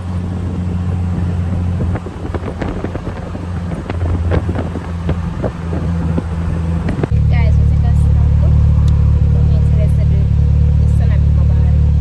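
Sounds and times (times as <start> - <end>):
wind buffeting microphone: 0.0 - 10.0
car engine humming: 0.0 - 12.0.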